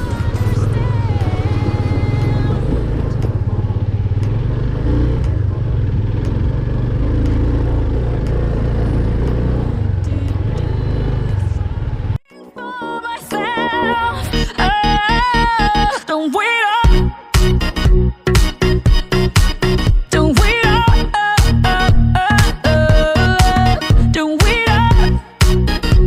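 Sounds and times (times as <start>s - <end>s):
faint pop song: 0.0s - 3.6s, 10.0s - 11.7s, 12.3s - 17.4s, 20.1s - 25.3s
motorcycle engine running: 0.0s - 12.2s.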